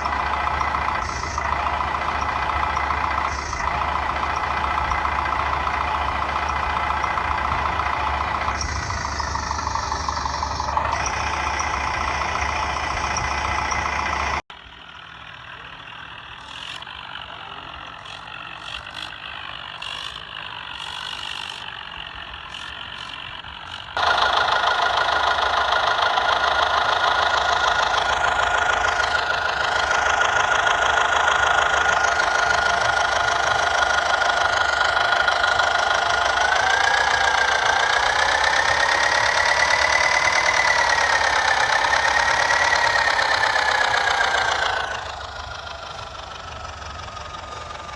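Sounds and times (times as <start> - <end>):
motor running with whine: 0.0 - 14.4, 24.0 - 47.9.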